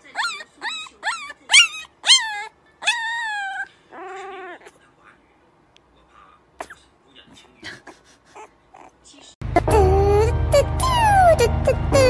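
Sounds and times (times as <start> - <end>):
puppy whining and yipping: 0.0 - 4.7, 9.6 - 12.0
puppy howling: 0.2 - 4.7, 9.6 - 12.0.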